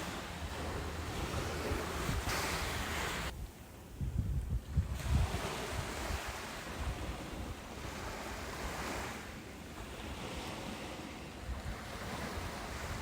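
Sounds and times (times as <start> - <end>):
hiss of water washing in: 0.0 - 3.3
wave breaking: 0.0 - 3.3.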